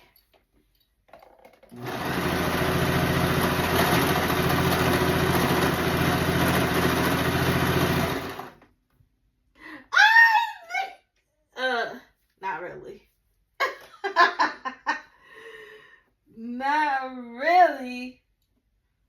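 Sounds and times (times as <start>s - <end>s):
electric sewing machine running: 1.7s - 8.6s.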